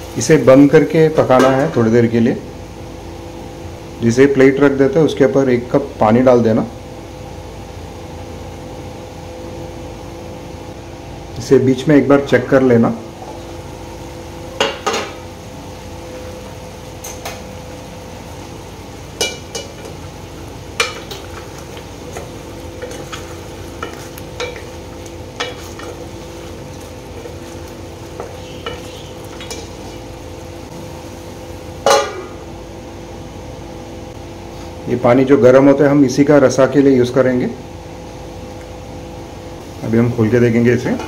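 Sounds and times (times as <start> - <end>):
chicken sizzling in a pot: 13.4 - 33.0.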